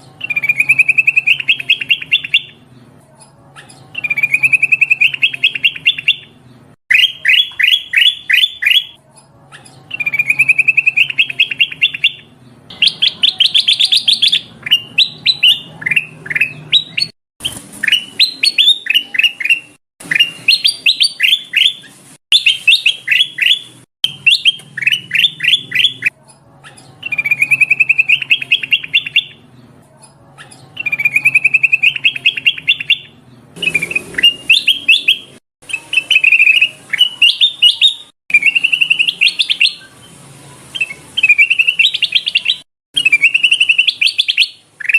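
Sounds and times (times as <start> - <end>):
bulbul calling: 0.2 - 2.6, 3.6 - 9.0, 9.6 - 26.1, 30.4 - 39.8.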